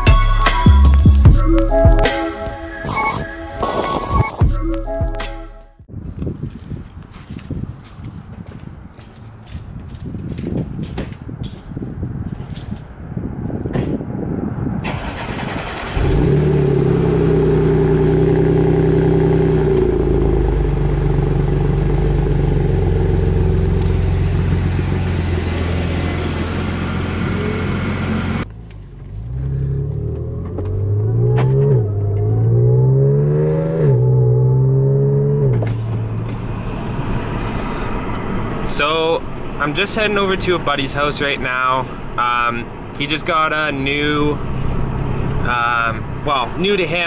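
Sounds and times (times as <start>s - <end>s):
car engine starting and idling: 14.8s - 47.0s
car accelerating through gears: 14.9s - 21.2s, 29.1s - 38.4s.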